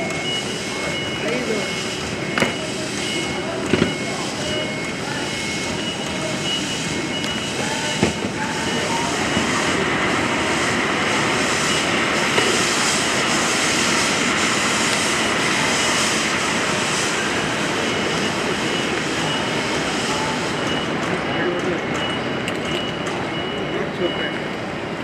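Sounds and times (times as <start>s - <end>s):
steam locomotive rushing steam: 0.0s - 21.8s.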